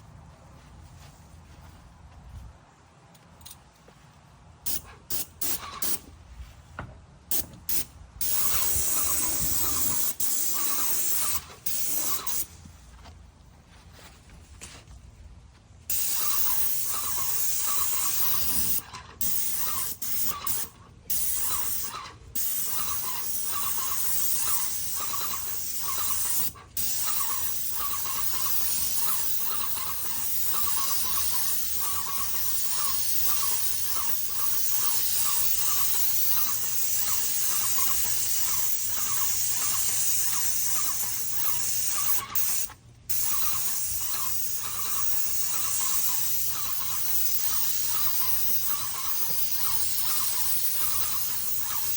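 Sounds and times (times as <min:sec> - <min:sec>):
paint sprayer hissing: 0:07.3 - 0:12.7, 0:15.9 - 0:51.9.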